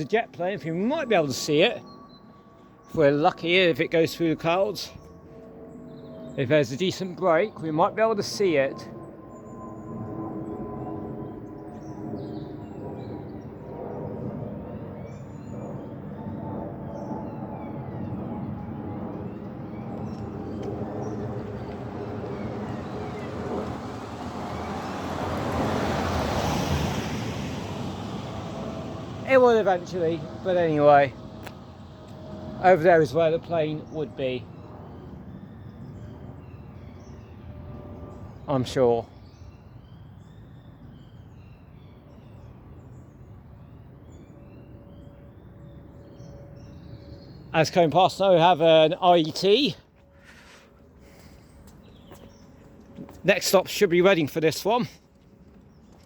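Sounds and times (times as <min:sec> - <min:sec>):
small birds chirping: 0:00.0 - 0:25.2, 0:28.3 - 0:56.0
jet airliner roar overhead: 0:00.0 - 0:56.0.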